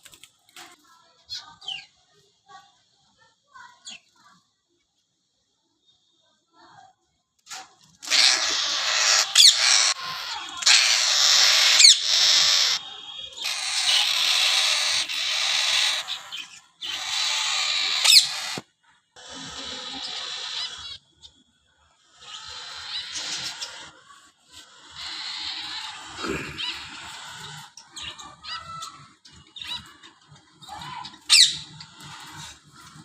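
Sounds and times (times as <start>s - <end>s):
caged birds chirping: 1.2s - 2.0s, 7.8s - 33.0s
sharp bird calls: 8.0s - 18.6s, 19.2s - 21.1s, 22.1s - 24.0s, 24.6s - 30.0s.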